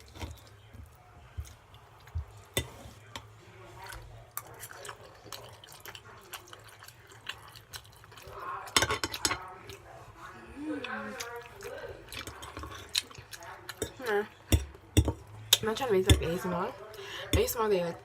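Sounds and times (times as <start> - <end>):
open-mouthed chewing: 3.8 - 8.7, 9.5 - 14.2.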